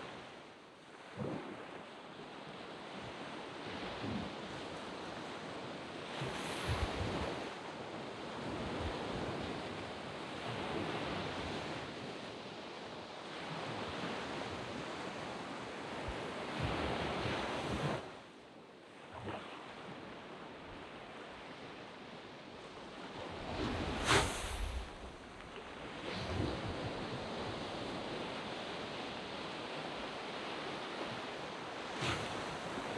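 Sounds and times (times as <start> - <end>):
waves breaking on beach: 0.0 - 18.2, 19.0 - 32.9
wind on microphone: 6.2 - 7.6, 22.7 - 29.8, 30.6 - 32.9.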